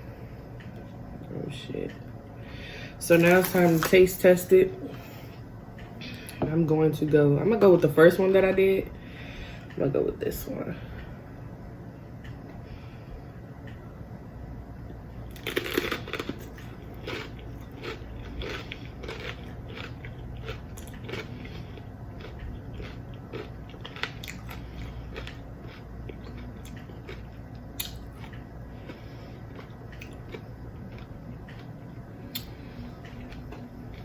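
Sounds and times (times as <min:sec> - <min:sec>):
crunchy chewing: 0:15.3 - 0:34.0.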